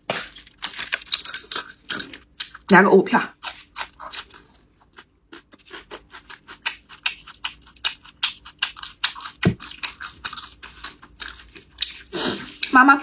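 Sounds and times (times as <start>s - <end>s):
crisp crunching: 0.0s - 2.7s.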